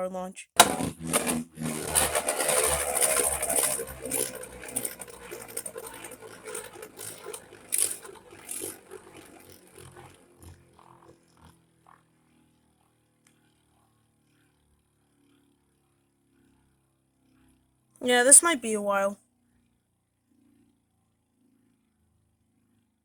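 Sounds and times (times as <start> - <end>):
spinning top knocks: 0.6 - 9.5
spinning top whirring in stadium: 0.6 - 11.6.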